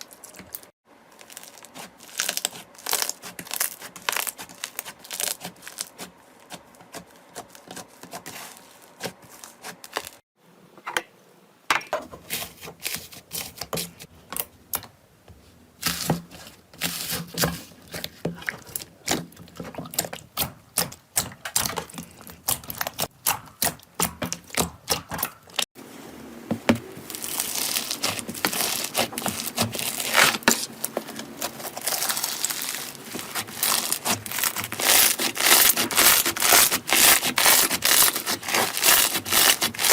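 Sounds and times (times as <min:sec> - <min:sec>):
slime clicking and crackling: 0:00.0 - 0:10.2, 0:18.0 - 0:25.6, 0:27.1 - 0:39.9.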